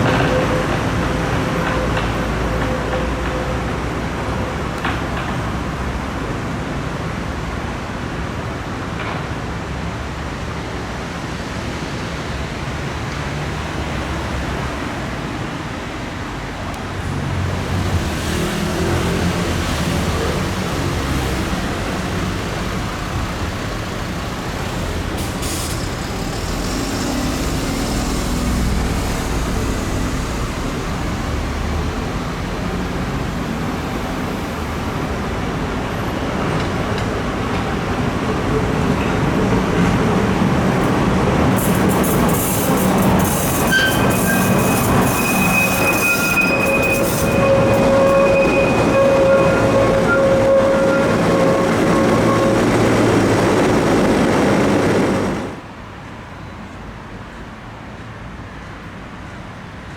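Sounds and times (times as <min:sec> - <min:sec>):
tram rumbling on rails: 0:00.0 - 0:59.9
high-pitched wheel squeal: 0:24.0 - 0:31.8, 0:41.6 - 0:55.5.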